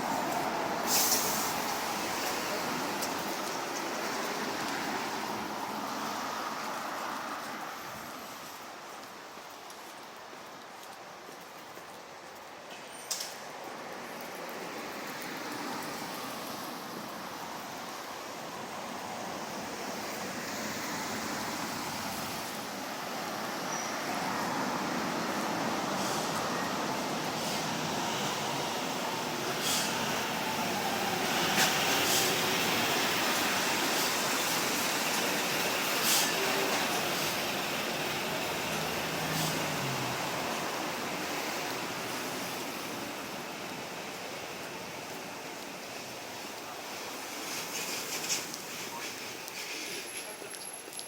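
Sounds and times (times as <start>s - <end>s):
passing traffic: 0.0s - 51.0s
short hiss: 0.8s - 1.6s
vehicle passing: 24.2s - 43.0s.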